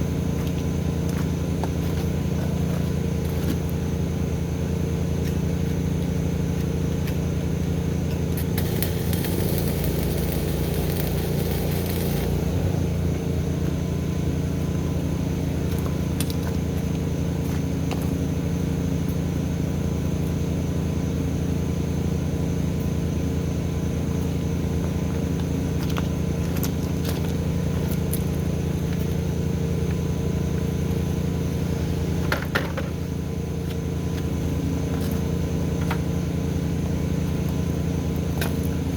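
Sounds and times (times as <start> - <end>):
engine running steadily: 0.0 - 38.9
hissing crackling burst: 8.5 - 12.9.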